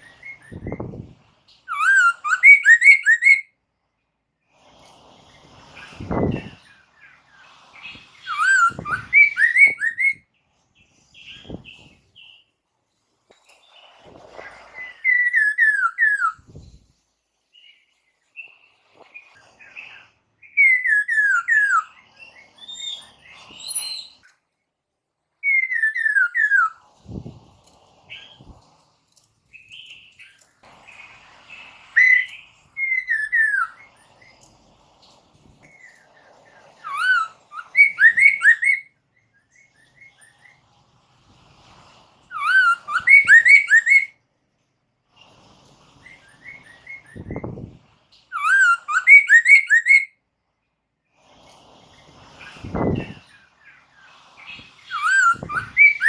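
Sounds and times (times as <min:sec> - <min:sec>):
bird whistling song: 0:00.0 - 0:03.5, 0:07.8 - 0:10.3, 0:14.3 - 0:16.8, 0:18.4 - 0:24.4, 0:25.4 - 0:27.3, 0:29.5 - 0:34.4, 0:36.8 - 0:40.6, 0:42.3 - 0:44.2, 0:46.0 - 0:50.2, 0:54.4 - 0:56.0
soft bird chatter: 0:04.6 - 0:12.7, 0:13.3 - 0:24.6, 0:25.5 - 0:44.3, 0:45.1 - 0:50.1, 0:51.1 - 0:56.0.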